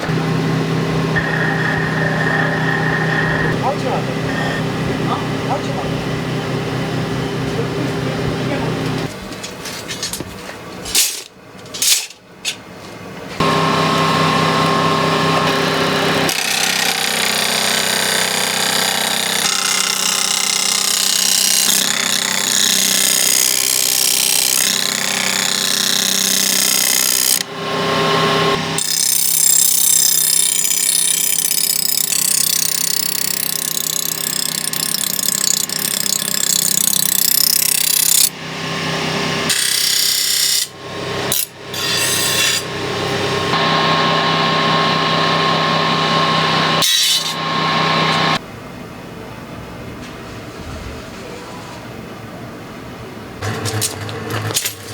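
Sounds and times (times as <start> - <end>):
electric grinder on steel: 0.0 - 5.8, 13.4 - 48.4, 53.4 - 54.9.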